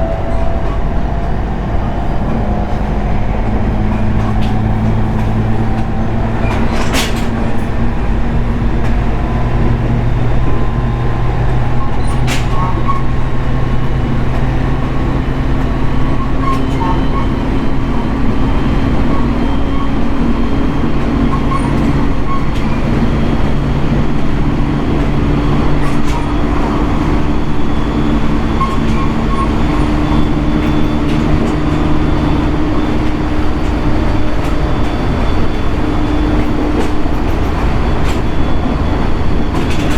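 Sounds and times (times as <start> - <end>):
train motor tones rising: 0.0 - 39.9
train wheels rumbling on rail: 0.0 - 39.9.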